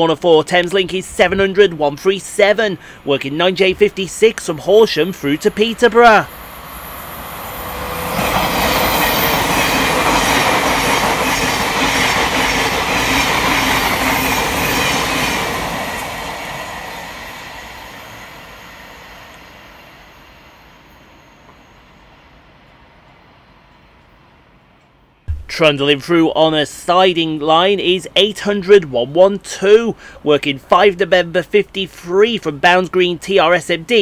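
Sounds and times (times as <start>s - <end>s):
wheels rushing on rail: 4.4s - 24.8s.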